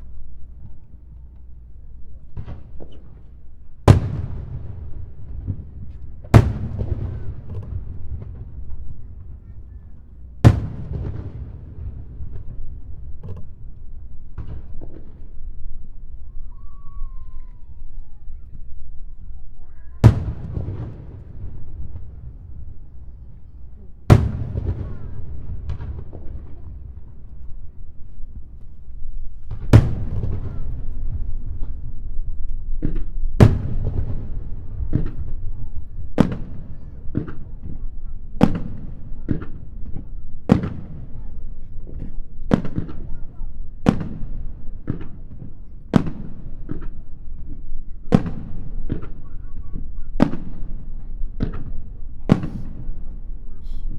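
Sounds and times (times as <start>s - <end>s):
fireworks shells bursting: 0.0s - 16.1s, 20.0s - 37.8s
continuous low rumble: 0.0s - 53.9s
fireworks crackle: 0.0s - 53.9s.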